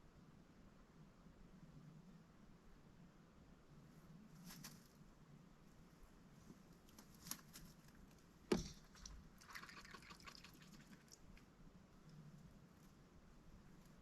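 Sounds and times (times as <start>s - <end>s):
water splashes and drips: 8.5s - 11.5s.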